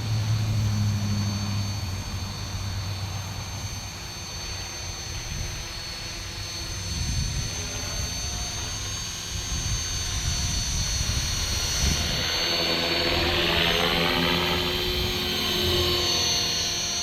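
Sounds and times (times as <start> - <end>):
rc helicopter rotor whine: 0.0 - 17.0
wind rumbling on microphone: 5.0 - 15.9.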